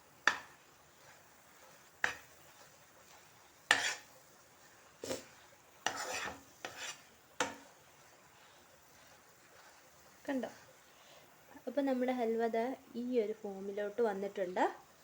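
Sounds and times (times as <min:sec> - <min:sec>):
spatula scraping a pan: 0:00.1 - 0:11.2.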